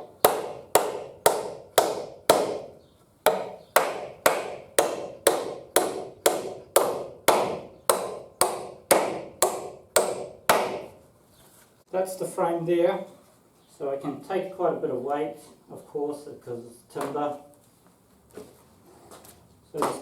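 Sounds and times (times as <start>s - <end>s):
hammer driving nails into timber: 0.0s - 11.0s.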